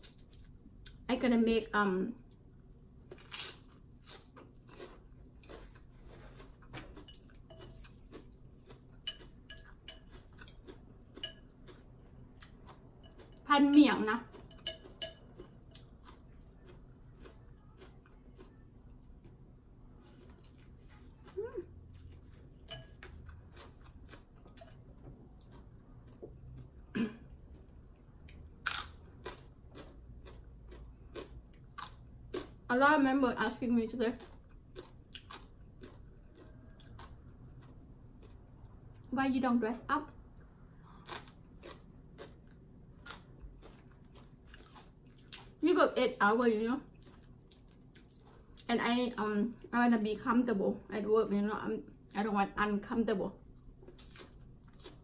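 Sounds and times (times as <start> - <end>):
food chewing crunches: 3.0 - 13.5, 14.2 - 19.4, 20.0 - 26.8, 27.4 - 32.7, 34.2 - 39.1, 40.4 - 45.6, 46.8 - 48.7, 53.5 - 55.0
utensils clinking against dishes: 14.4 - 15.9.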